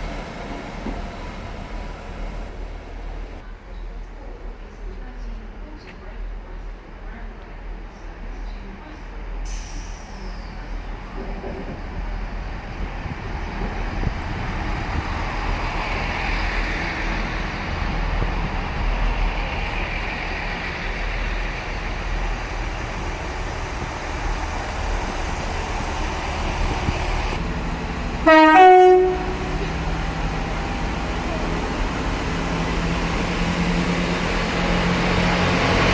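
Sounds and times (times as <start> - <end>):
train rumbling: 0.0 - 35.9
two-note train horn: 28.2 - 29.7.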